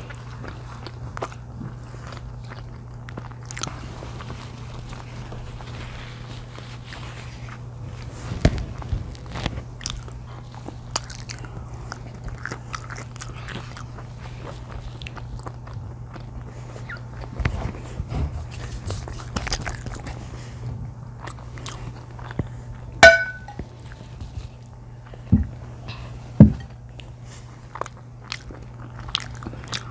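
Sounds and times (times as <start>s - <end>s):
biting and chewing food: 0.0s - 25.7s, 26.6s - 29.9s
low hum: 22.8s - 23.6s
sharp ringing clink: 23.0s - 23.6s.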